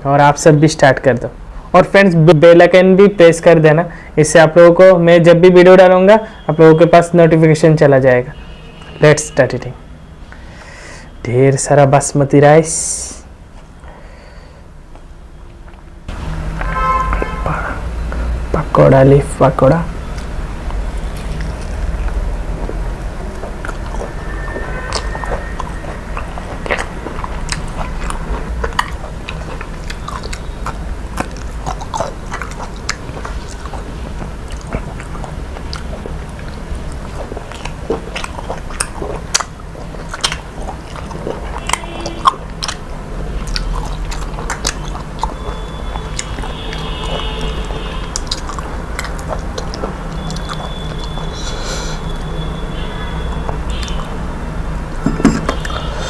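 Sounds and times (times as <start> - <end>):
person chewing crisp food: 20.0 - 52.4, 53.2 - 54.2.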